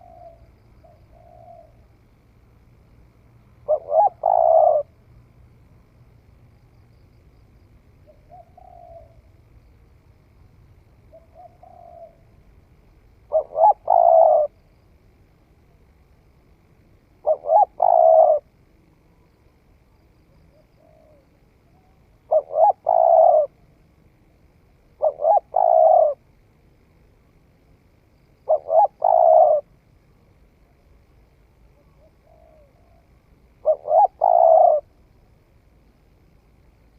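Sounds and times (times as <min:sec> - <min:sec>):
dove cooing: 0:00.0 - 0:01.9, 0:03.6 - 0:05.0, 0:08.0 - 0:09.4, 0:11.1 - 0:12.4, 0:13.3 - 0:14.6, 0:17.2 - 0:18.5, 0:20.5 - 0:23.6, 0:24.9 - 0:26.2, 0:28.4 - 0:29.7, 0:31.7 - 0:35.0.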